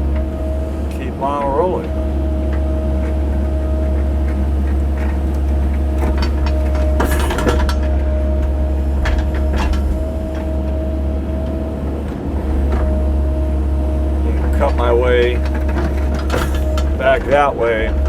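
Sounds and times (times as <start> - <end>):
diesel engine droning: 0.0 - 18.0
hydraulic whine: 0.0 - 18.0
bucket clunks and knocks: 1.9 - 10.6, 14.3 - 18.0.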